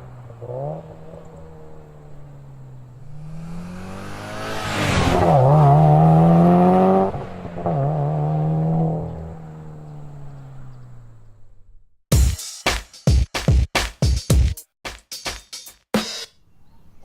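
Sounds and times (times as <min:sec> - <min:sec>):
car engine revving: 0:00.0 - 0:11.7.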